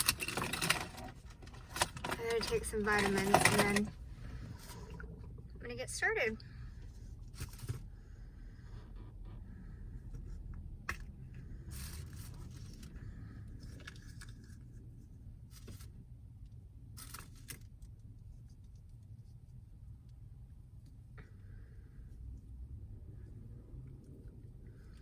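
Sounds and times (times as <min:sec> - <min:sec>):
packaging rustling and clicking: 0:00.0 - 0:04.0
low rumble inside car: 0:00.0 - 0:25.0.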